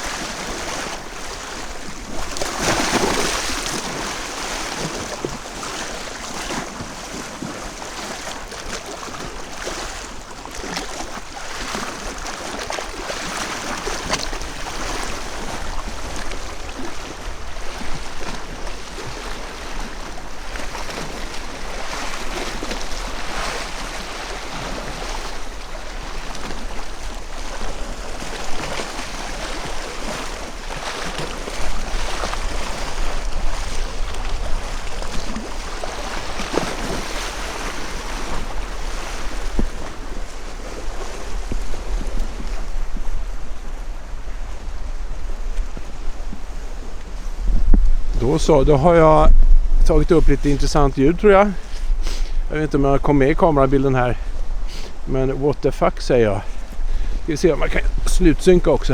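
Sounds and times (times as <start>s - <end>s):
small waves washing on shore: 0.0s - 58.9s
wind blowing: 14.2s - 58.9s.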